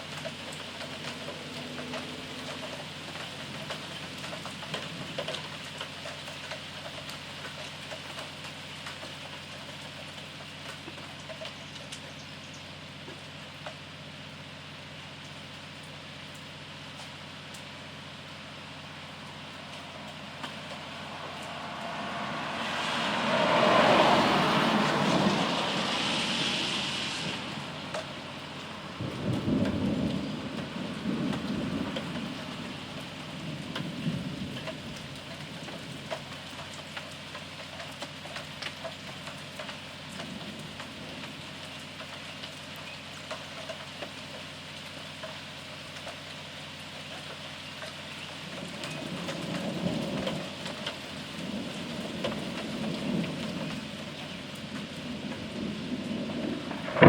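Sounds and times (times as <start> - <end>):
steady rain falling: 0.0 - 57.0
water drips: 19.2 - 29.4
thunder rumbling: 19.4 - 36.3, 48.6 - 57.0
loud rushing: 20.9 - 27.9, 56.7 - 57.0.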